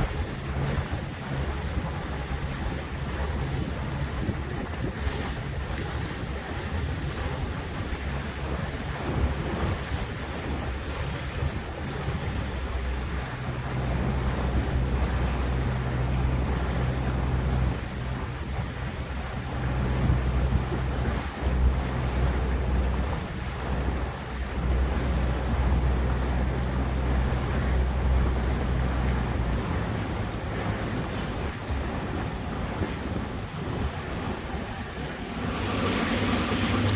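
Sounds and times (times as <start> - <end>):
motorboat engine humming: 0.0 - 36.9
water rushing past hull: 0.0 - 36.9
wind buffeting microphone: 0.0 - 36.9.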